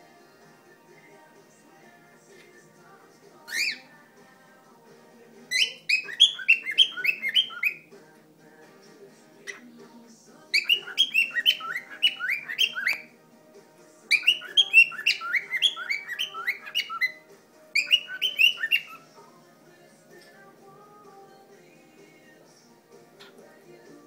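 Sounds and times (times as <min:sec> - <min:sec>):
cockatiel chirping whistled notes: 0:03.5 - 0:03.8, 0:05.5 - 0:07.8, 0:10.6 - 0:13.1, 0:14.1 - 0:17.2, 0:17.8 - 0:19.0.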